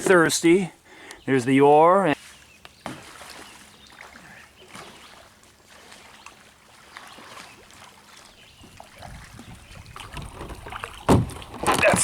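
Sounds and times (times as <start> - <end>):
creek water trickling and splashing: 0.0 - 12.0
knocks on kayak: 10.1 - 12.0.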